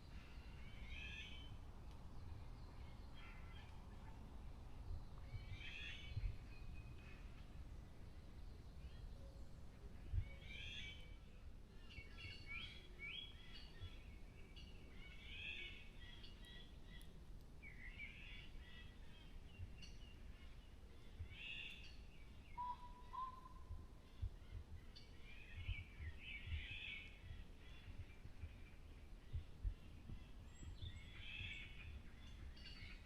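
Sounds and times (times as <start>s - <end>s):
songbirds chirping: 0.0s - 33.0s
low bird whistle: 22.6s - 23.8s.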